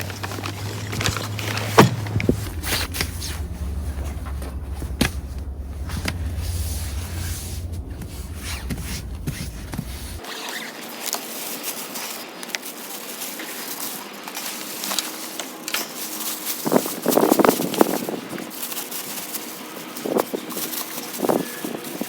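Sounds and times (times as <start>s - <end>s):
low rumble: 0.0s - 10.2s
rustling and handling knocks: 0.0s - 10.2s.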